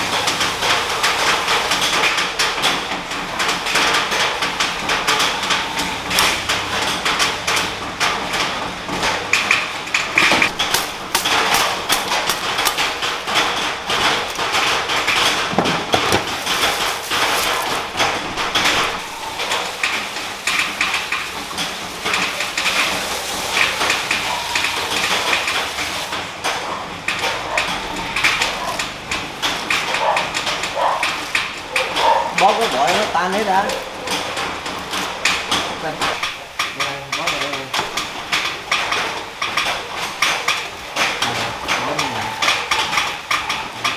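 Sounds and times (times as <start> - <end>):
heavy rain on a tin roof: 0.0 - 43.9.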